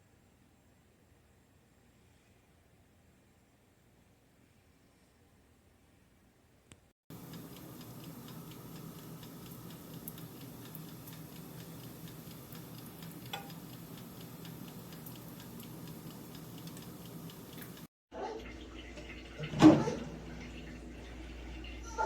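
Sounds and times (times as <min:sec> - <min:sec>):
dial timer ticking: 0:07.1 - 0:17.9
toaster oven humming: 0:07.1 - 0:17.9.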